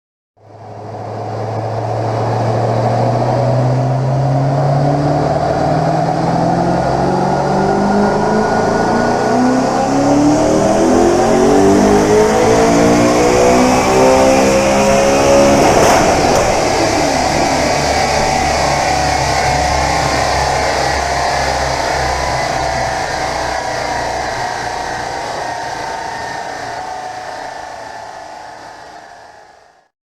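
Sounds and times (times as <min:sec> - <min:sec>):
car engine revving up: 0:00.7 - 0:27.8
sharp crack of rev limiter: 0:05.0 - 0:23.7.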